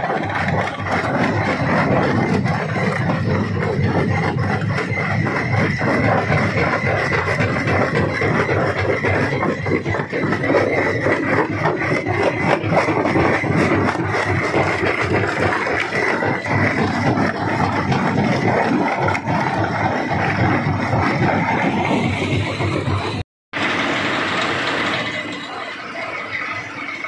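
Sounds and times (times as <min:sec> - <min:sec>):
rock crusher grinding stone: 0:00.0 - 0:27.0
steady high whine: 0:00.0 - 0:27.0.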